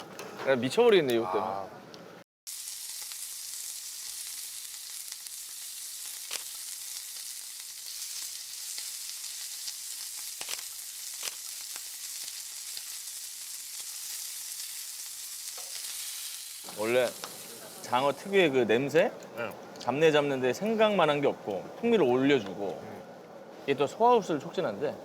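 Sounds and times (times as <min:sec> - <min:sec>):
eel sizzling on grill: 0:02.5 - 0:19.5.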